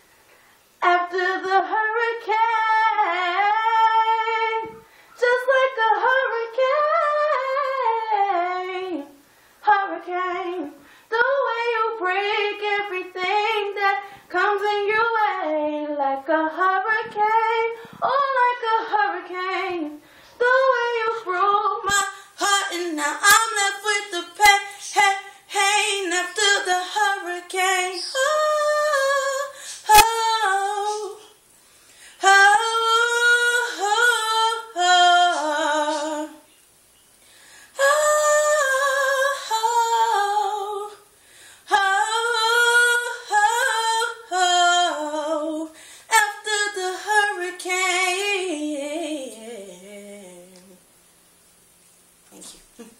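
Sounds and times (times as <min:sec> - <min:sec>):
woman singing unaccompanied: 0:00.8 - 0:31.5, 0:32.1 - 0:36.6, 0:37.7 - 0:50.9
woman breathing: 0:04.8 - 0:05.2, 0:10.8 - 0:11.1, 0:20.0 - 0:20.4, 0:29.5 - 0:29.9, 0:31.6 - 0:32.2, 0:37.2 - 0:37.8, 0:41.1 - 0:41.7, 0:45.7 - 0:46.1.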